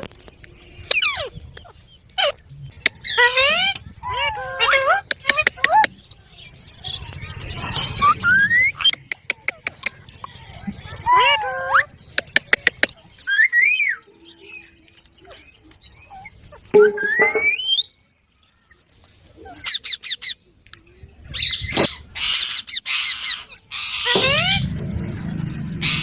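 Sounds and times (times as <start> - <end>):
parrot screeching squawks: 3.0 - 5.0, 21.5 - 24.6
parrot whistling: 16.8 - 17.9.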